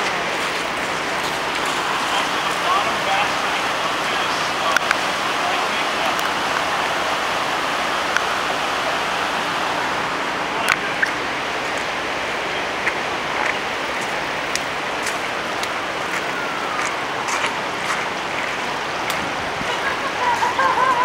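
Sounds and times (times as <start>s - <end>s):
running floodwater rushing: 0.0s - 21.0s.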